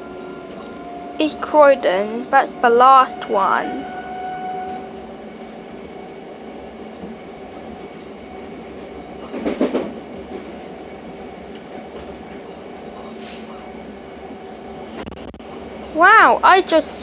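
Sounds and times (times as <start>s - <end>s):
train rattle: 0.0s - 13.4s
train wheels on rail: 4.6s - 15.1s.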